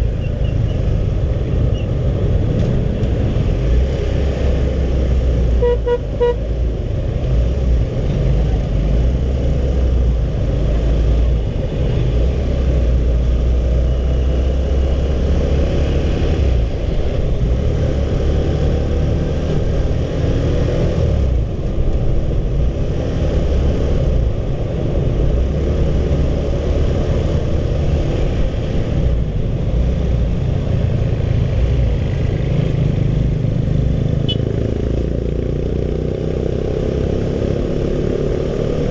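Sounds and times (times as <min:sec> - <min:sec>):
vehicle horn tooting: 0:05.6 - 0:06.4.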